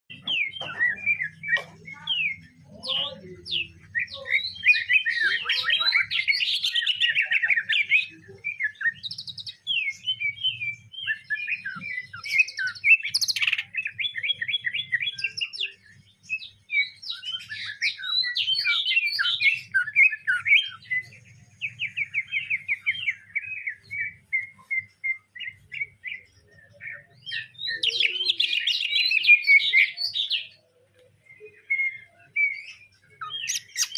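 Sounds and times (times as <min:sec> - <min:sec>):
bird singing chirps and trills: 0:00.1 - 0:33.9.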